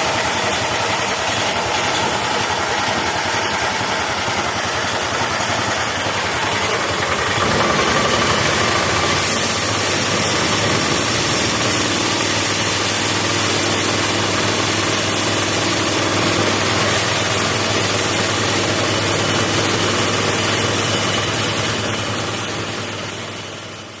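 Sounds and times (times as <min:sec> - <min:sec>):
sawmill engine running: 0:00.0 - 0:24.0.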